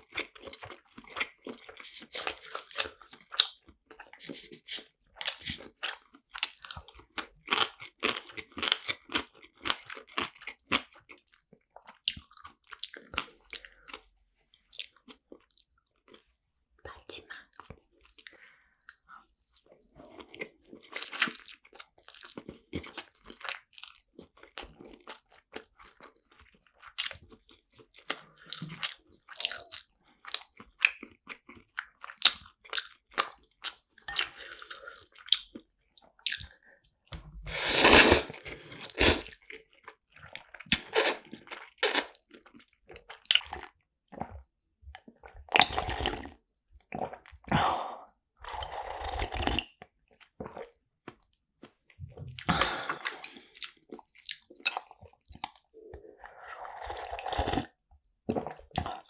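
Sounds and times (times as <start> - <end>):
person chewing food: 20.8 - 21.4, 37.5 - 38.3, 39.0 - 39.3, 40.8 - 42.1.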